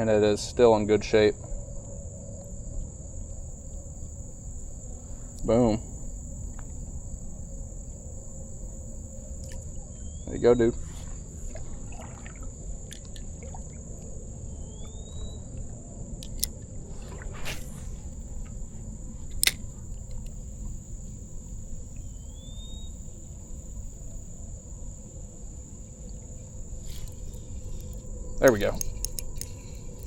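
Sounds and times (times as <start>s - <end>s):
insects trilling: 0.0s - 30.0s
rising bird whistle: 9.9s - 11.2s, 14.5s - 15.5s, 22.0s - 23.1s
sharp clicks: 16.2s - 16.6s, 19.3s - 20.4s, 27.1s - 30.0s.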